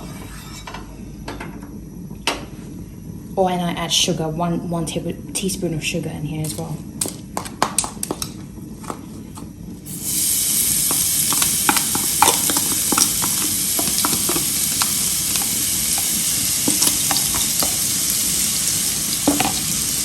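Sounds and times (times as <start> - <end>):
spatula scraping a pan: 0.0 - 1.0, 10.6 - 19.8
aromatics sizzling in hot oil: 6.5 - 20.0.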